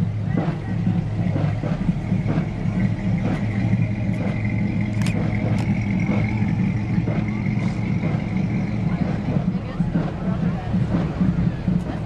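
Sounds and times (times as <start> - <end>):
car engines rumbling: 0.0 - 12.0.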